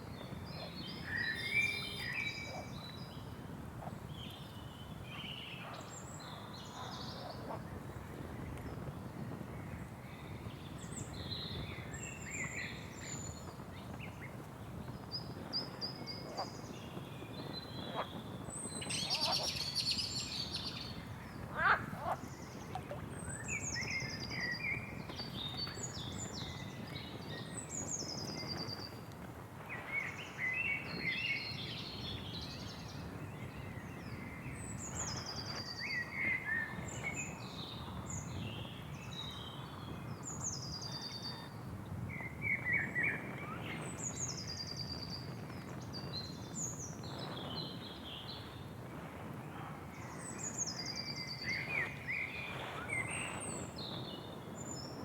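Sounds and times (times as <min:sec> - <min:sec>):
birds singing and chirping: 0:00.1 - 0:03.3, 0:15.1 - 0:29.0
bird high descending call: 0:01.1 - 0:02.6.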